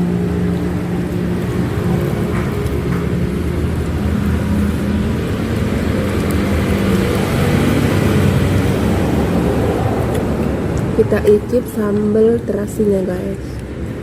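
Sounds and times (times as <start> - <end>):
vehicle engines passing on road: 0.0 - 14.0.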